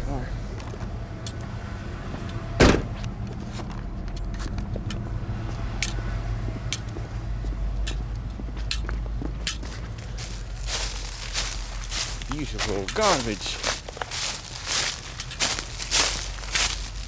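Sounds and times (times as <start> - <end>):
low engine hum: 0.0 - 17.0
car door slamming: 2.6 - 3.1
footsteps: 7.4 - 17.0.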